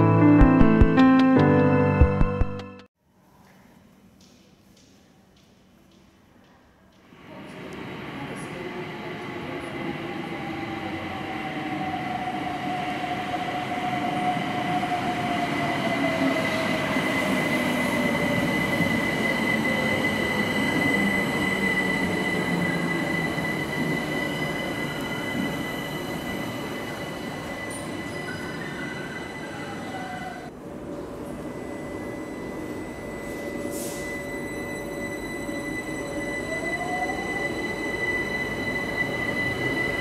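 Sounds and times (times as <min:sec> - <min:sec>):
high steady squeal: 0:31.4 - 0:40.0.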